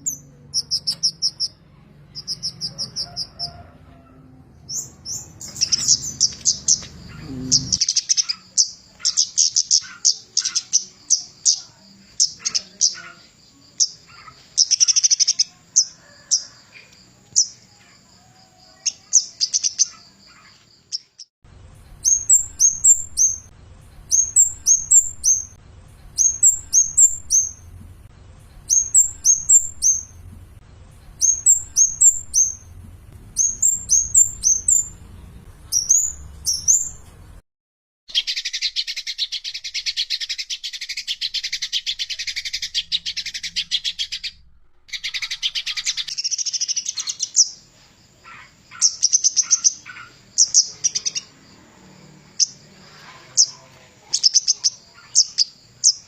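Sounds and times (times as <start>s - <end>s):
bird high-pitched chips: 0.0s - 1.6s, 2.2s - 3.6s, 4.7s - 16.5s, 18.8s - 21.3s, 22.0s - 23.5s, 26.2s - 27.7s, 28.7s - 30.2s, 31.2s - 32.8s, 33.4s - 35.0s, 35.7s - 37.1s, 38.1s - 47.6s, 48.3s - 51.3s, 54.1s - 56.0s.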